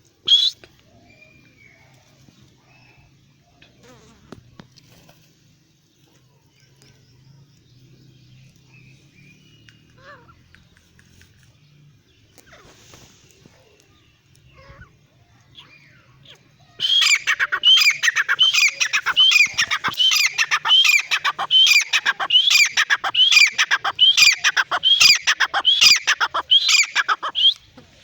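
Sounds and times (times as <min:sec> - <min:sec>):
francolin calling: 0:16.8 - 0:27.7.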